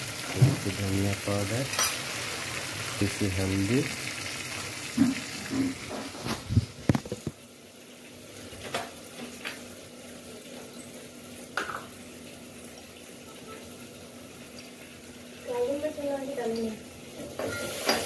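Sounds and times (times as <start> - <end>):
faint sizzle in a pot: 0.0 - 18.0
metal cookware clattering: 17.2 - 18.0.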